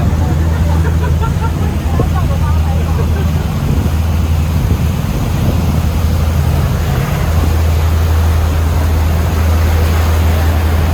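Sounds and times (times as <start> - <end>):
boat engine droning: 0.0 - 10.9
steady rushing noise: 0.0 - 10.9.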